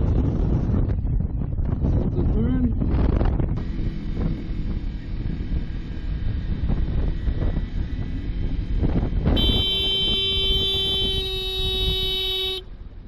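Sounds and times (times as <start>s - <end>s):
motorcycle wind and road rumble: 0.0s - 13.0s
vehicle horn long note: 9.3s - 12.7s.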